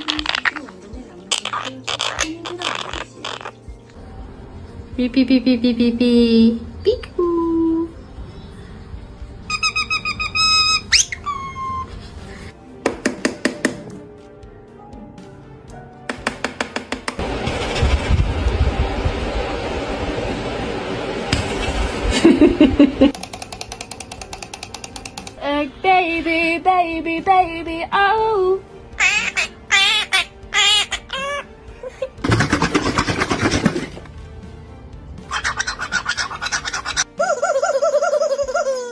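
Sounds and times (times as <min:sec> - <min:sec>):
parrot whistle sweeping up: 0:09.5 - 0:11.9
parrot pulsed calls: 0:09.5 - 0:12.0, 0:29.0 - 0:31.6, 0:35.2 - 0:38.9.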